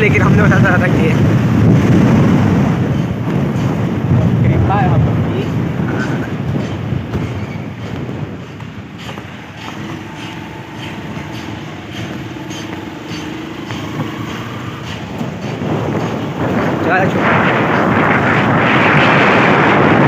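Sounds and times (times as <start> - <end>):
train rumbling on rails: 0.0 - 20.0
steady hum: 6.9 - 18.8.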